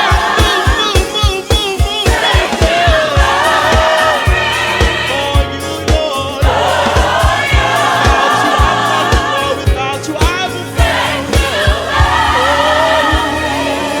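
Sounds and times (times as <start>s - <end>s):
choir singing: 0.0s - 10.0s, 10.6s - 14.0s
steady drum beat: 0.0s - 14.0s.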